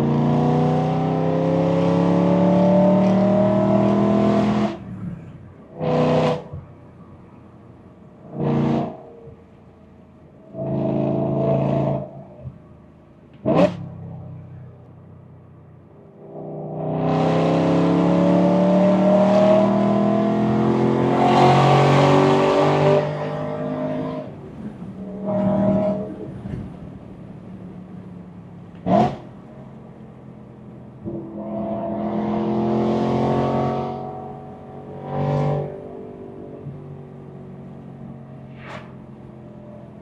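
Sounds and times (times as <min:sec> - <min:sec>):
car engine accelerating: 0:00.0 - 0:07.0, 0:16.1 - 0:29.6.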